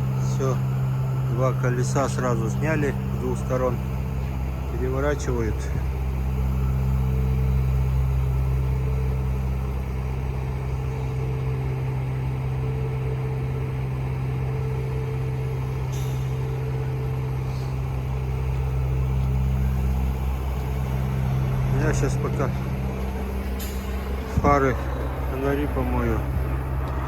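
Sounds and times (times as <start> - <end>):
diesel truck engine idling: 0.0 - 27.0.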